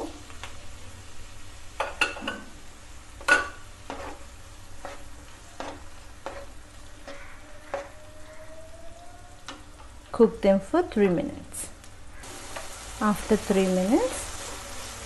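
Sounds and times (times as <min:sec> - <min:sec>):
vegetables sizzling in oil: 0:00.0 - 0:08.4, 0:09.0 - 0:15.0
spatula scraping a pan: 0:03.2 - 0:08.3.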